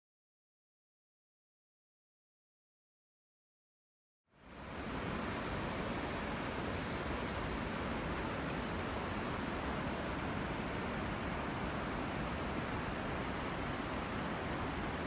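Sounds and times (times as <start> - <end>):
waterfall roaring: 4.5 - 15.0.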